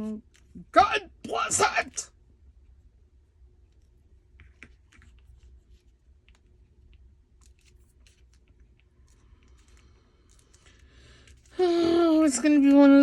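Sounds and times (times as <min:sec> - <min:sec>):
paper rustling: 0:07.4 - 0:12.3.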